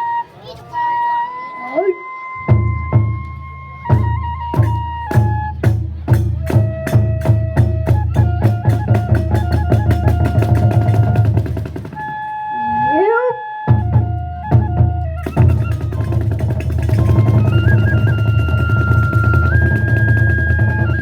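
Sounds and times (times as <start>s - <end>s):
flute holding high notes: 0.0s - 5.6s, 6.4s - 21.0s
drum strikes: 2.5s - 12.3s, 13.7s - 21.0s.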